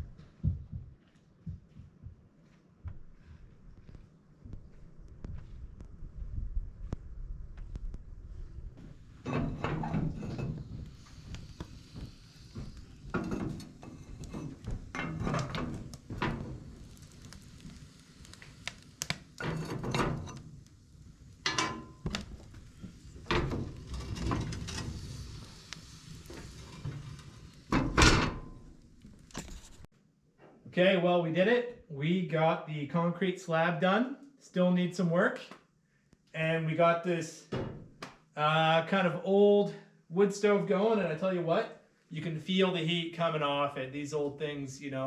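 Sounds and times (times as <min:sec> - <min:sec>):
scraping: 0:21.5 - 0:29.9.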